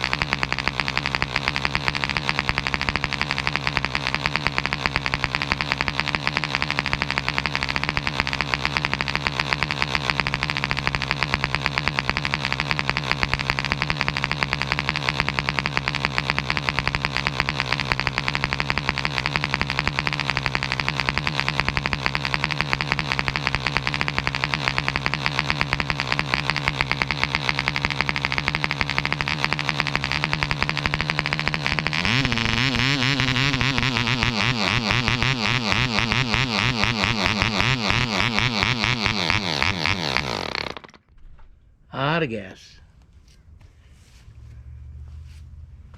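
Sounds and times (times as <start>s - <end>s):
model airplane engine buzzing: 0.0s - 41.0s.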